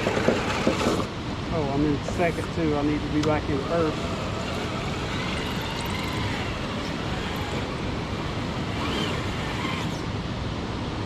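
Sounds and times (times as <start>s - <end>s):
steady rushing noise: 0.0s - 11.0s
electric motor and gears whining: 1.8s - 10.4s.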